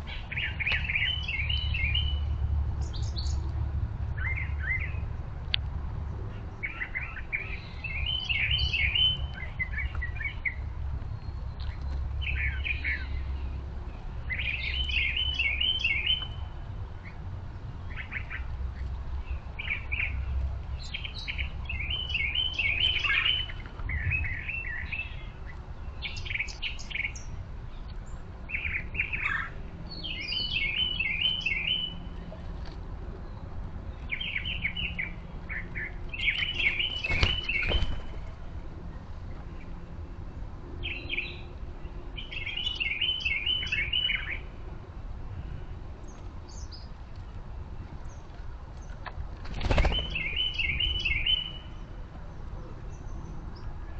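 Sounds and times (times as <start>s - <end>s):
songbirds chirping: 0.0s - 53.9s.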